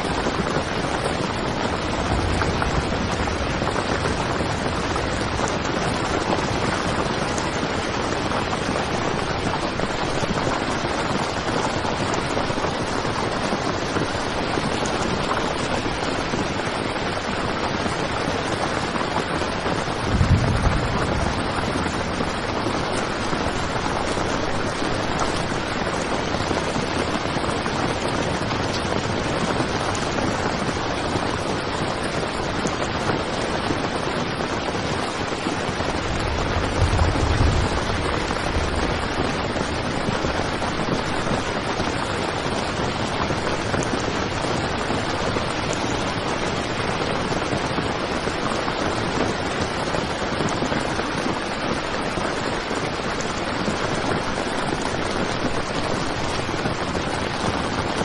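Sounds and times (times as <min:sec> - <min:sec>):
heavy rain on a tent: 0:00.0 - 0:58.0
low rumble: 0:01.8 - 0:06.5, 0:20.0 - 0:24.2, 0:35.7 - 0:41.3.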